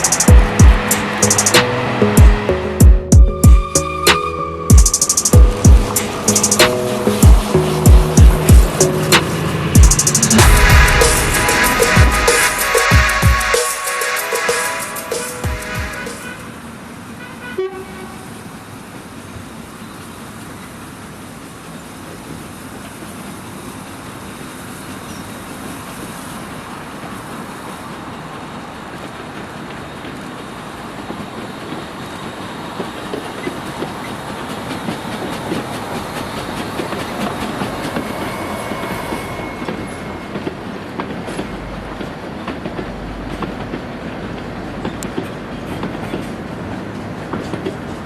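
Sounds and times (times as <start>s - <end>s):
steam train rolling: 0.0s - 17.2s, 18.1s - 48.0s
wheels clicking over rail joints: 18.5s - 38.6s, 39.3s - 48.0s.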